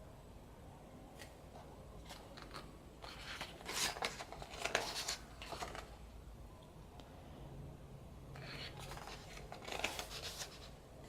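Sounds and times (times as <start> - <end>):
pages being turned: 2.0 - 5.9, 8.4 - 10.8.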